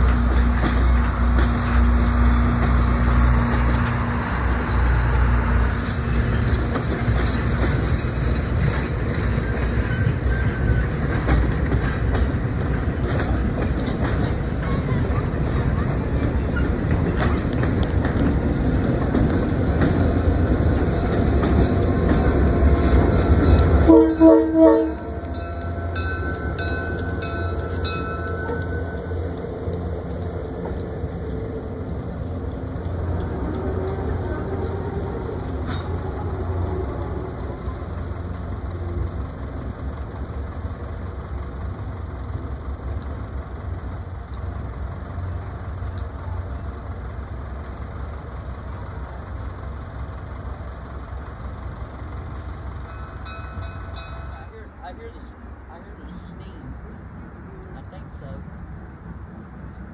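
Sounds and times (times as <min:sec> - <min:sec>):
regular rail clicks: 0:00.0 - 0:57.8
engine rumble: 0:00.0 - 0:59.9
train running on rails: 0:00.0 - 0:59.9
train horn toots: 0:23.8 - 0:25.3.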